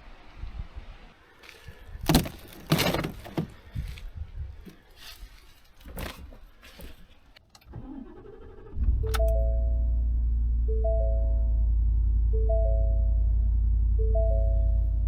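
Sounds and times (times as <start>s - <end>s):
objects clicking and knocking: 2.1s - 3.6s
faint low hum: 8.7s - 15.0s.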